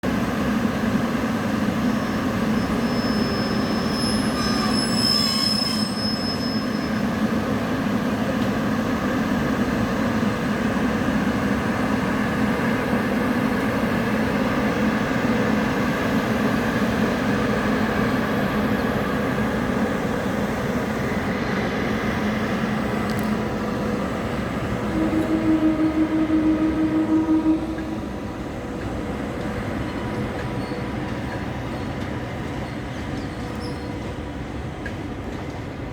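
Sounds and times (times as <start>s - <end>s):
train wheels on rails: 0.0s - 35.9s
high wheel squeal: 2.3s - 7.2s, 32.6s - 34.0s.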